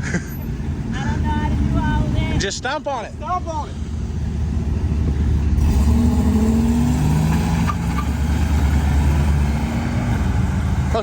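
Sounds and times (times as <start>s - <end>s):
car engine revving: 3.8s - 11.0s.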